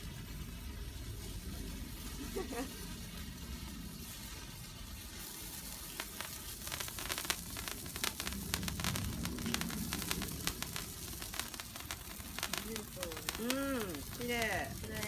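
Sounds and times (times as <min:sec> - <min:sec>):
firework hissing: 0:00.2 - 0:15.0
crackling pops: 0:05.2 - 0:15.0.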